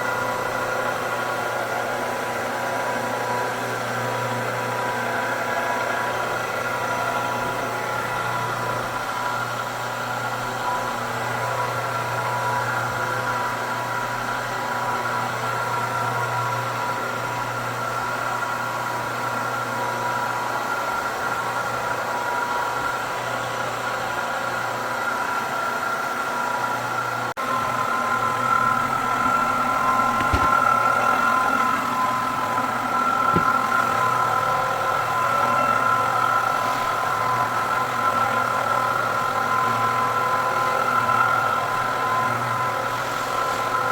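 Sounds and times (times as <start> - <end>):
floor buffer sanding wood floor: 0.0 - 43.9.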